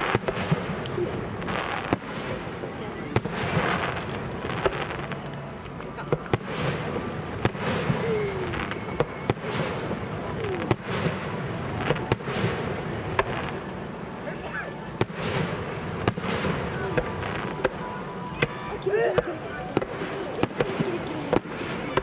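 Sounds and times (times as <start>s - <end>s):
firework shells bursting: 3.1s - 13.9s.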